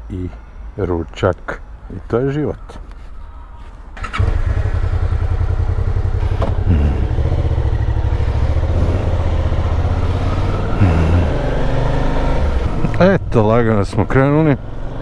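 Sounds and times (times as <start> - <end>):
motorcycle engine rumbling: 0.0 - 14.4.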